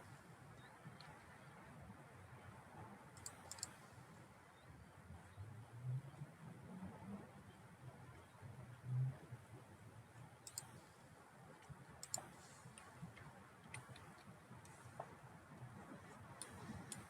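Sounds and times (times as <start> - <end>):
computer mouse clicks: 3.2 - 3.8, 10.4 - 10.9, 12.0 - 12.9, 16.4 - 17.0.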